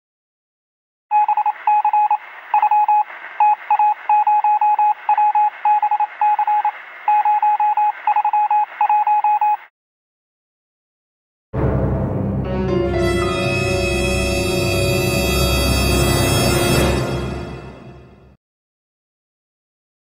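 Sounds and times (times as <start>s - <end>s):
morse code beeps: 1.1s - 9.7s
radio hiss: 1.4s - 9.0s.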